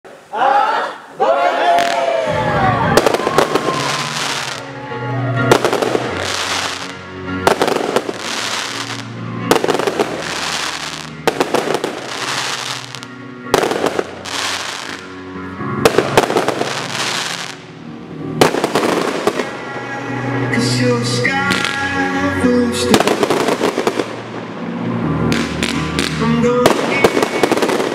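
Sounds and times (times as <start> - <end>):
music with sustained notes: 1.8 - 27.9
fireworks bangs and crackle: 2.8 - 4.7, 5.5 - 15.1, 15.8 - 17.6, 18.4 - 19.6, 21.5 - 21.9, 22.9 - 24.4, 25.3 - 27.9.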